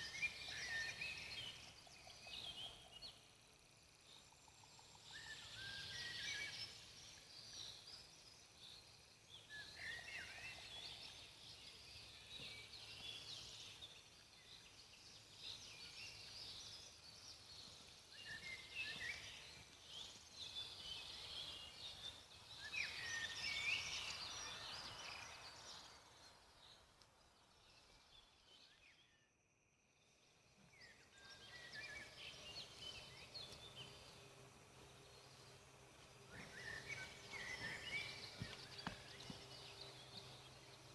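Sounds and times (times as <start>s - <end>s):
small birds chirping and singing: 30.0s - 40.9s.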